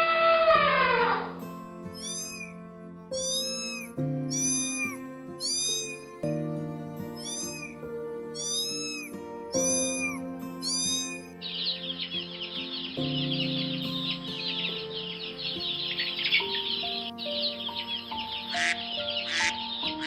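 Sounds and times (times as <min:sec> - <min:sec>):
cat meowing: 0:00.0 - 0:01.4, 0:02.0 - 0:02.5, 0:03.2 - 0:06.0, 0:07.2 - 0:07.8, 0:08.4 - 0:11.3
background music: 0:00.0 - 0:20.0.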